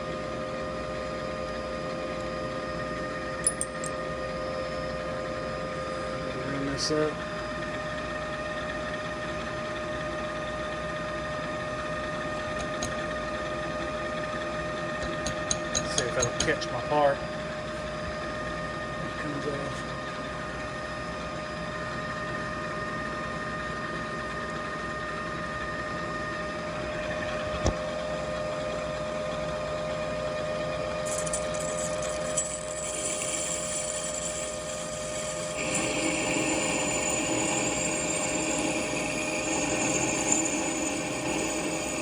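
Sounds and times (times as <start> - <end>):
lathe motor hum: 25.9 - 42.0
lathe tool cutting metal: 31.1 - 42.0.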